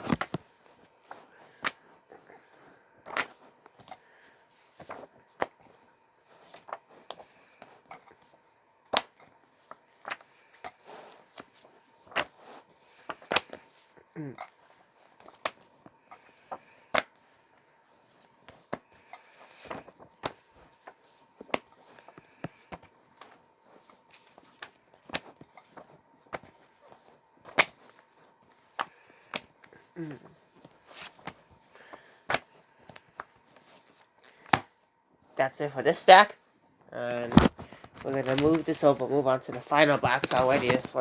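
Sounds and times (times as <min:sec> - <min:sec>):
paper and plastic rustling: 0:00.0 - 0:08.4, 0:14.5 - 0:34.6, 0:37.1 - 0:41.0
comic books tapping down: 0:37.2 - 0:41.0.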